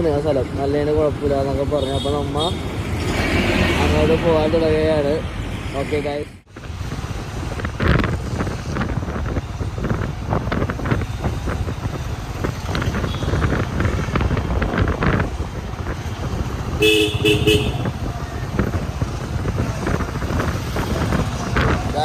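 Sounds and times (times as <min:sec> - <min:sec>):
vehicle road rumble: 0:00.0 - 0:22.0
vehicle horn short beeps: 0:16.8 - 0:17.9.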